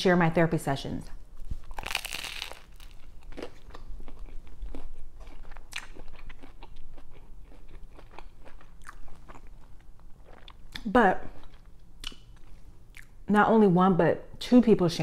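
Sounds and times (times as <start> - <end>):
close chewing and mouth clicks: 1.4 - 13.2
bread crunching in a bite: 1.5 - 10.6.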